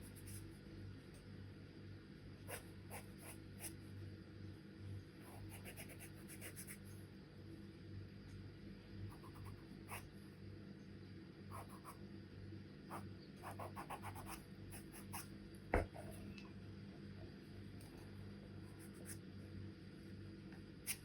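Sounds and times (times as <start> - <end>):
charcoal pencil scratching on paper: 5.3 - 7.0, 12.9 - 15.3.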